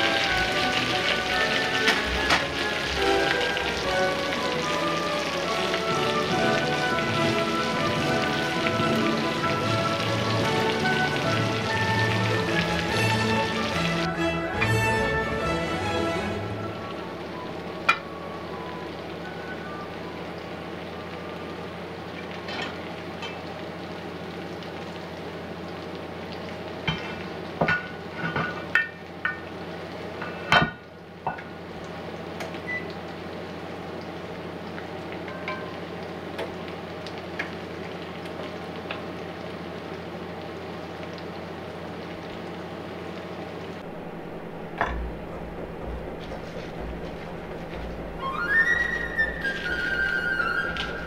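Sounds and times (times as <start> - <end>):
stir-fry sizzling in a wok: 0.0 - 51.0
low hum: 43.6 - 51.0.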